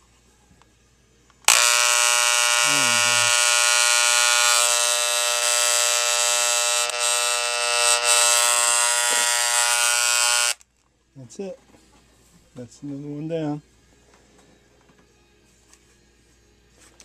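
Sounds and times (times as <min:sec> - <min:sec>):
hair clipper buzzing: 0:01.4 - 0:10.6.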